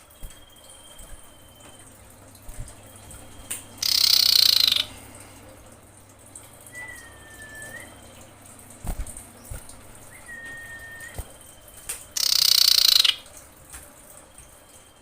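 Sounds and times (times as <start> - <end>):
thin drawn-out bird whistle: 3.0 - 4.9, 6.7 - 8.2, 10.0 - 13.2.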